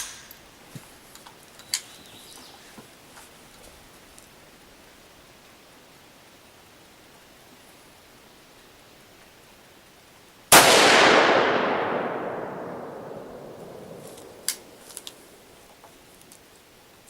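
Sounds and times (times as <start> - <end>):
rifle shot with echo: 10.5 - 15.3.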